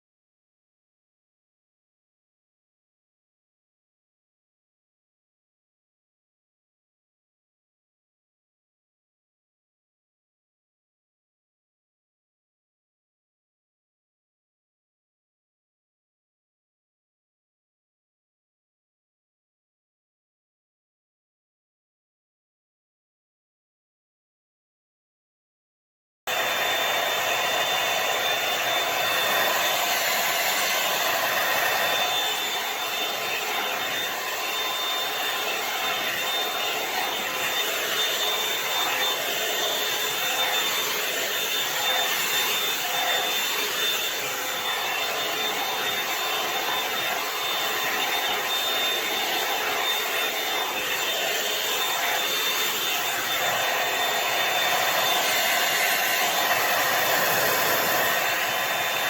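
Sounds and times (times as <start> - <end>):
hair dryer blowing hiss: 26.3 - 59.0
high motor whine: 26.3 - 59.0.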